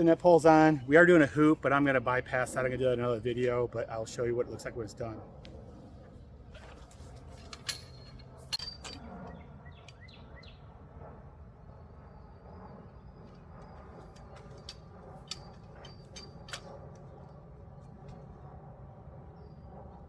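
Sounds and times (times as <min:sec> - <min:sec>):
outdoor background noise: 0:00.0 - 0:20.0
metal parts clicking and clinking: 0:07.3 - 0:09.1, 0:14.0 - 0:16.8.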